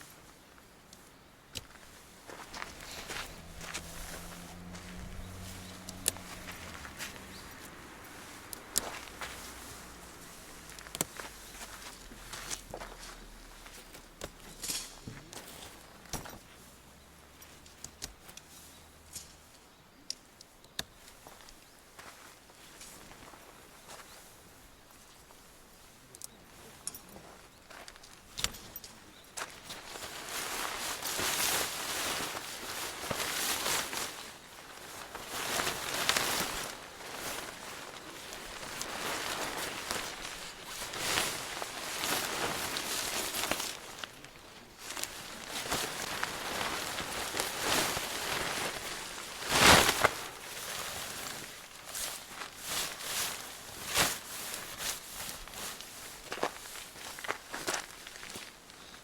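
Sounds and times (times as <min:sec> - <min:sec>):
rustling and crinkling: 0:00.0 - 0:59.0.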